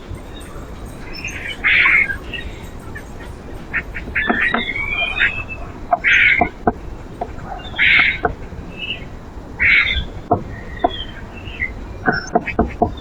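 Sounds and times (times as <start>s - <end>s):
loud rough bird calls: 0.0s - 6.5s
bird chirps: 0.0s - 9.1s.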